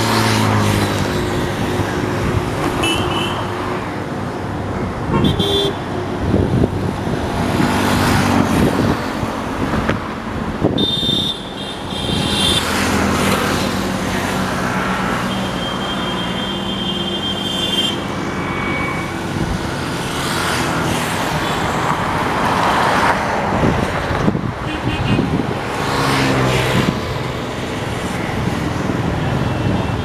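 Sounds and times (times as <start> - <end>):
road traffic: 0.0 - 30.0
vehicle horn: 2.8 - 3.5, 5.1 - 5.8, 10.8 - 12.7, 15.4 - 19.1, 24.6 - 25.4.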